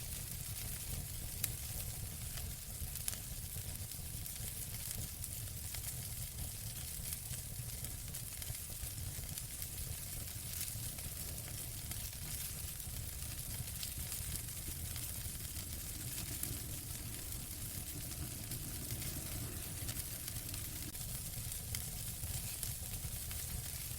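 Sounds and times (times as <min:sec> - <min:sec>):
wood fire crackling and popping: 0:00.0 - 0:23.9
low rumble: 0:14.6 - 0:21.0.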